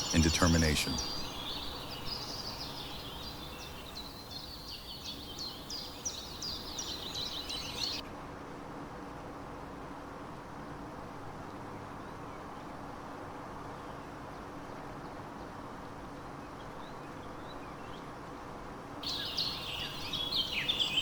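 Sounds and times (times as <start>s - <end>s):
faint hum: 0.0s - 7.0s.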